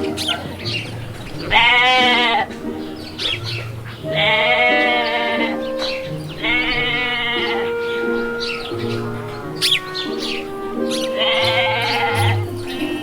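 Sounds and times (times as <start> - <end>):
background music: 0.0 - 13.0
sheep bleating: 1.4 - 2.5, 4.0 - 5.7, 6.4 - 9.8, 11.1 - 13.0.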